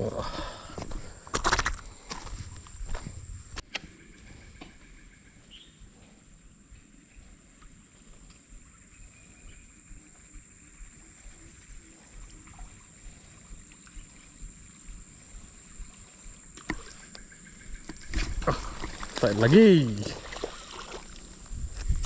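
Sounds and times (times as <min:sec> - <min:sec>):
water trickling: 0:10.4 - 0:22.0.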